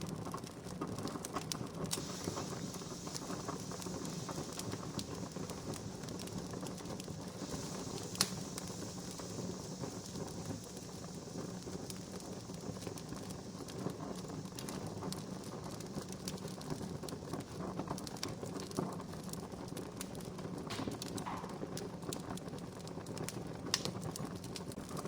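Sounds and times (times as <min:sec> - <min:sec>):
wood fire crackling: 0:00.0 - 0:25.0.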